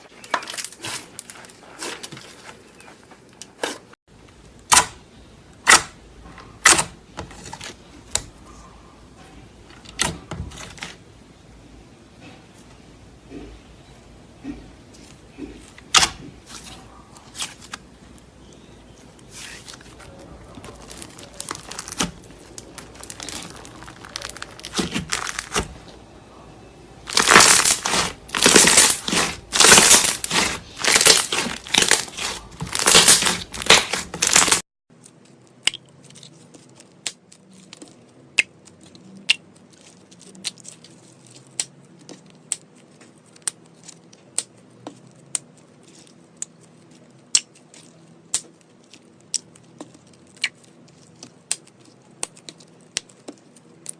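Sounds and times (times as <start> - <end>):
slime squishing by hand: 14.4 - 26.0, 27.0 - 34.6.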